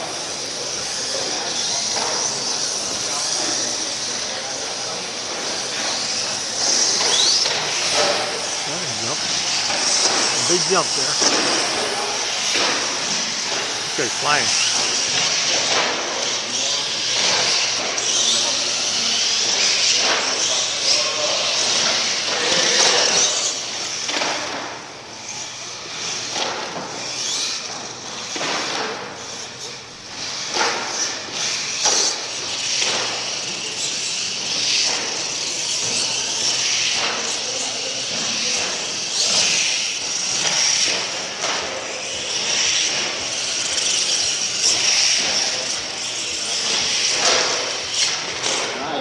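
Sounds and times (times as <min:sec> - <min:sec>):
monster truck engines: 0:00.0 - 0:49.0
arena noise: 0:00.1 - 0:16.5.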